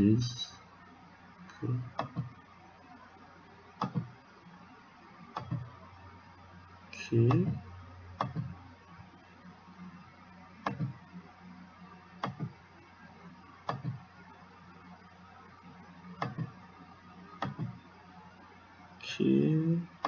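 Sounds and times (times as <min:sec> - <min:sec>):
faint low hum: 0:00.0 - 0:20.0
computer mouse clicking: 0:02.0 - 0:02.3, 0:03.8 - 0:04.1, 0:05.3 - 0:05.7, 0:08.2 - 0:08.6, 0:10.6 - 0:11.0, 0:12.2 - 0:12.5, 0:13.7 - 0:14.0, 0:16.2 - 0:16.6, 0:17.4 - 0:17.8.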